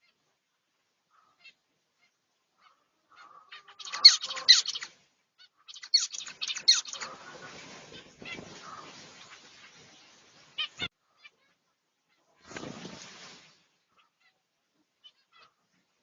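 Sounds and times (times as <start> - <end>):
finches chirping: 2.6 - 11.5.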